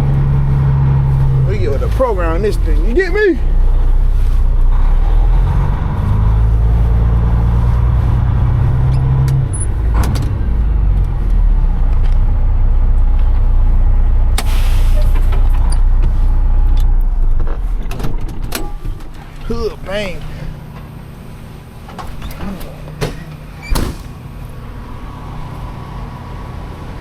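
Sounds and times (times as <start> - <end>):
diesel truck engine running: 0.0 - 27.0
air release hiss: 14.4 - 15.3.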